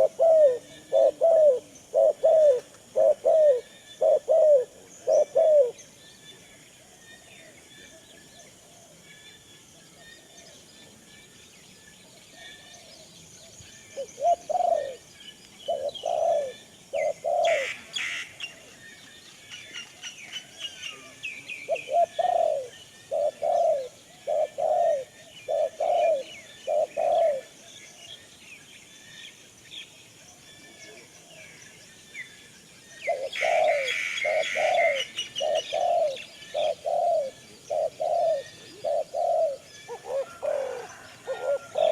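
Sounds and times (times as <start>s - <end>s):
bird giving low calls: 0.0s - 5.9s, 13.9s - 15.1s, 15.7s - 18.8s, 20.5s - 27.6s, 33.0s - 41.9s
high twittering of small birds: 0.0s - 41.9s.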